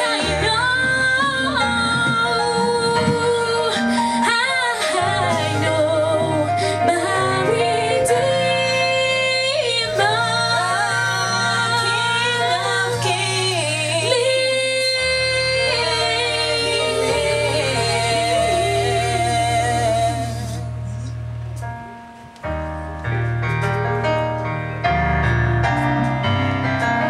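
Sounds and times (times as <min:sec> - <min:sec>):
low bass accompaniment: 0:00.0 - 0:04.4, 0:05.0 - 0:27.0
women singing gospel song: 0:00.0 - 0:20.8.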